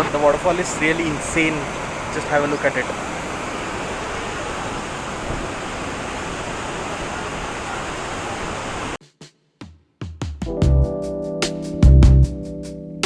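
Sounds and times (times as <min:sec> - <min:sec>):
waterfall rushing: 0:00.0 - 0:09.0.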